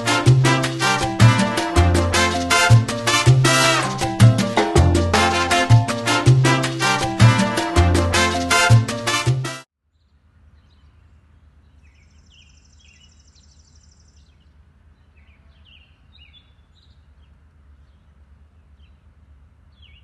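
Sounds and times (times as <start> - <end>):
high rapid trill: 0.0 - 9.0
bird chirps: 9.9 - 19.0.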